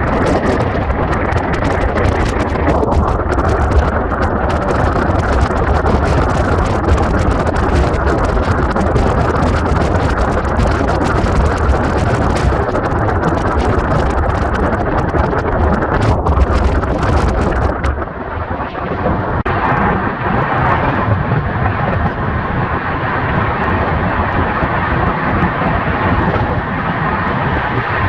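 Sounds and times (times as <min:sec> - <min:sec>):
moving train rumble: 0:00.0 - 0:18.7
rushing wind: 0:00.0 - 0:28.0.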